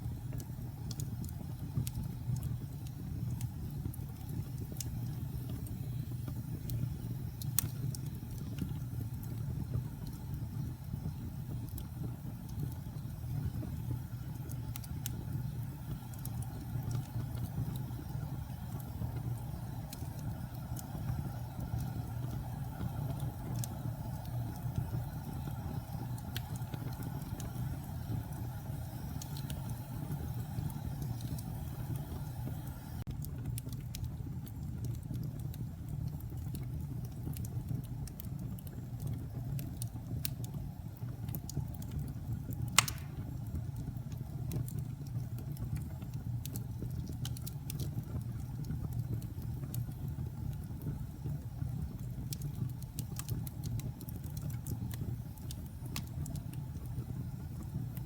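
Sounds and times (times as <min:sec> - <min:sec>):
wood fire crackling: 0:00.0 - 0:58.0
sharp loud pop of fire: 0:42.8 - 0:43.3.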